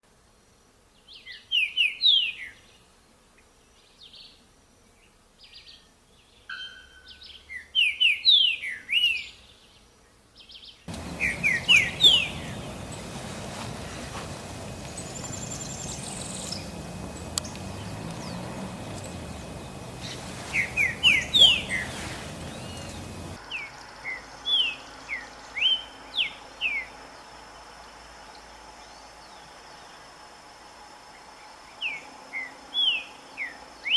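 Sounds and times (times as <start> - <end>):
background hiss: 0.0 - 7.5, 8.2 - 33.9
bird singing whistled notes: 10.9 - 24.7.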